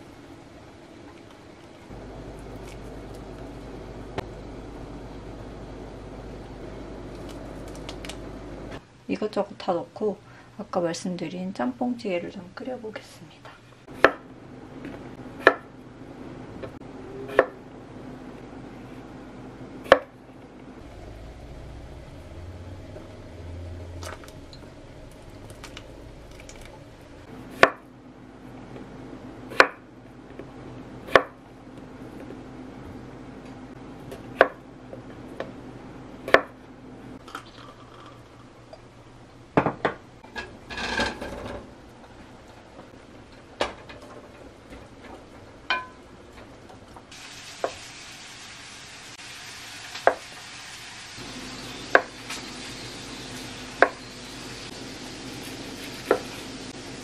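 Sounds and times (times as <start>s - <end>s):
steady hiss: 47.1s - 57.0s.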